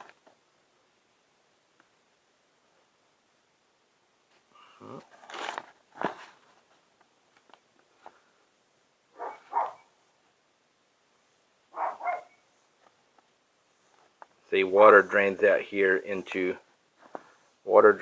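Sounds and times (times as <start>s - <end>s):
rustling and handling noises: 4.2s - 8.5s, 11.8s - 18.0s
dog barking: 9.1s - 9.9s, 11.7s - 12.4s.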